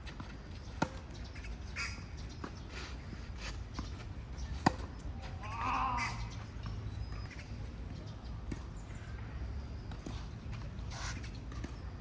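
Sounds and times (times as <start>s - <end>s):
tennis racket hitting ball: 4.6s - 5.0s.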